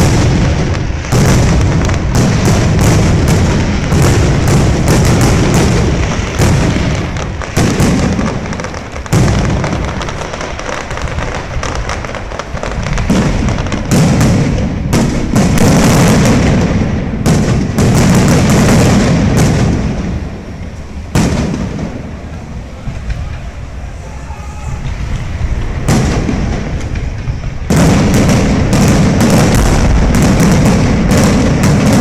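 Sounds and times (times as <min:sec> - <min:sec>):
firework shells bursting: 0:00.0 - 0:23.9, 0:24.7 - 0:32.0
fireworks crackling: 0:00.0 - 0:32.0
loud bangs: 0:00.0 - 0:32.0
low rumble: 0:22.0 - 0:28.9.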